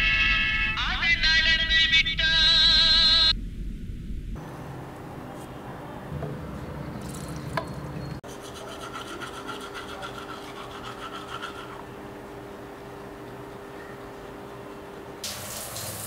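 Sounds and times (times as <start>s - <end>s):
faint steady hum: 0.0s - 15.2s
toothbrush scrubbing teeth: 8.3s - 11.8s.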